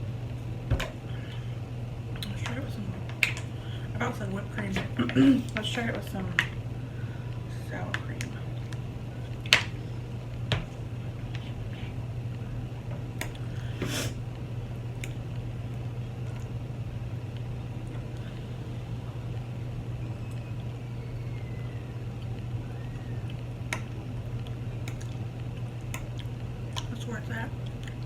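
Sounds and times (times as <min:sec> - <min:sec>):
steady low hum: 0:00.0 - 0:28.0
soft utensil clicks: 0:23.2 - 0:25.2, 0:25.8 - 0:26.9.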